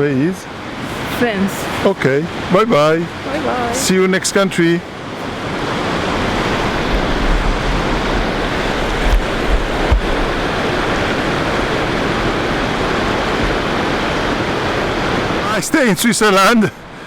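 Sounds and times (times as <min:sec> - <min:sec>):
fast river water rushing: 0:00.1 - 0:17.0
wind buffeting microphone: 0:00.5 - 0:15.9.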